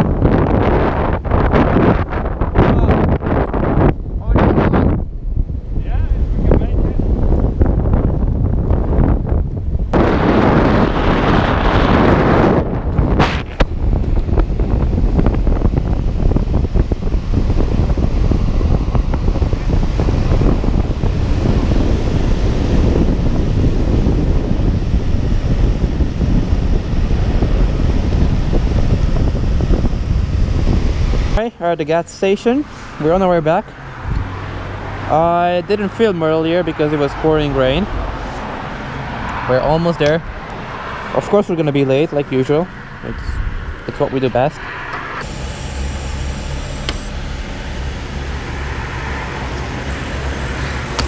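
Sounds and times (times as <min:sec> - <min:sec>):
motorcycle engine humming: 0:00.0 - 0:51.0
wind buffeting microphone: 0:00.0 - 0:51.0
sharp click: 0:46.8 - 0:47.1.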